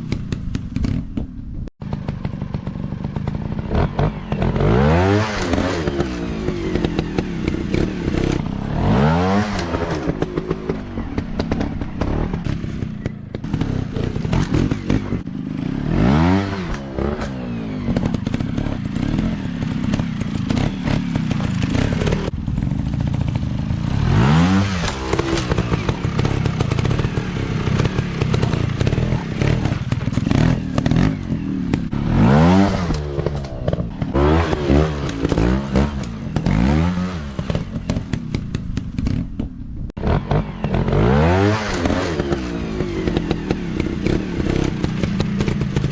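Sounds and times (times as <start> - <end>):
sharp clicks and knocks: 0.0 - 2.4, 5.3 - 15.3, 24.8 - 41.0
dirt bike engines revving: 1.9 - 45.9.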